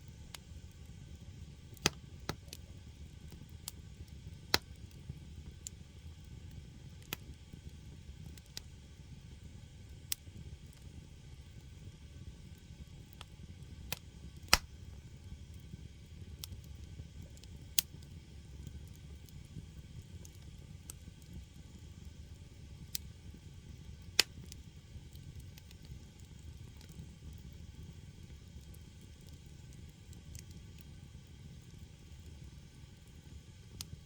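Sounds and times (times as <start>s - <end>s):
fire rumbling: 0.0s - 34.0s
logs popping and crackling: 1.7s - 2.7s, 13.9s - 15.6s, 24.0s - 27.3s.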